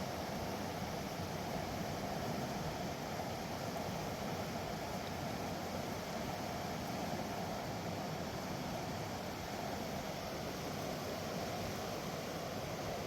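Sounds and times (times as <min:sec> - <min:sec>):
river rushing over rocks: 0:03.2 - 0:13.0.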